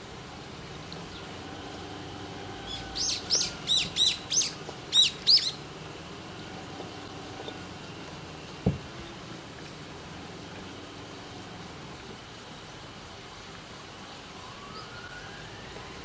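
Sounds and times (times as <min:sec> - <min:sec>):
songbird chirping: 0:00.6 - 0:09.3.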